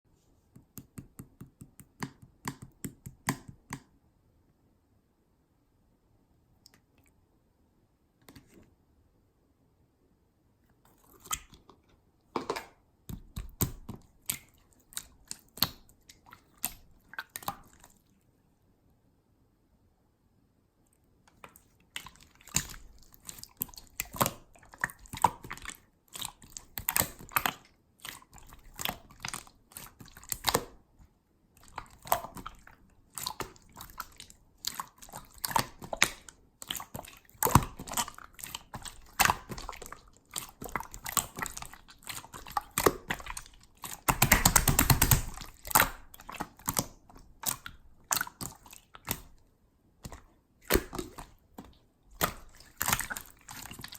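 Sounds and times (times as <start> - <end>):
slime squeezed with wet pops: 13.1 - 18.0, 21.3 - 30.9, 31.6 - 49.4, 50.0 - 53.9.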